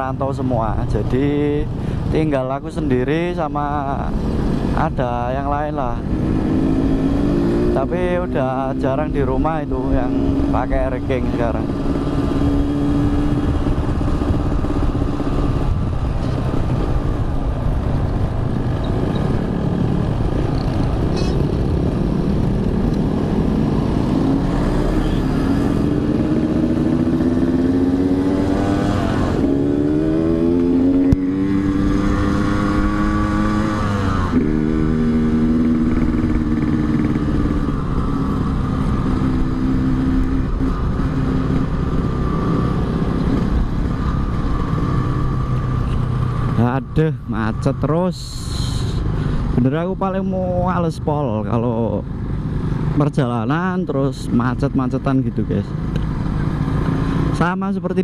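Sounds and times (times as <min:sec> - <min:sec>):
wind noise: 0:08.7 - 0:24.8
two-stroke motorcycle engine: 0:18.7 - 0:46.7.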